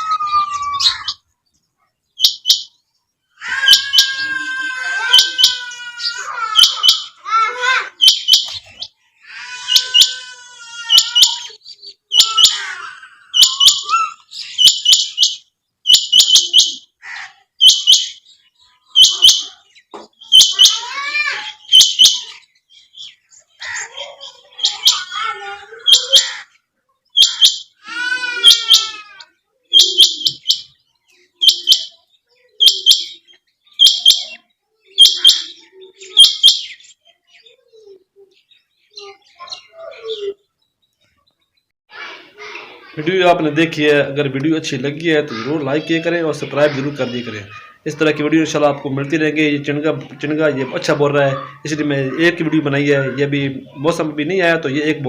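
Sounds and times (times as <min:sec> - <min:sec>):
quail calling: 0:03.4 - 0:07.2, 0:07.9 - 0:30.8, 0:31.4 - 0:37.6.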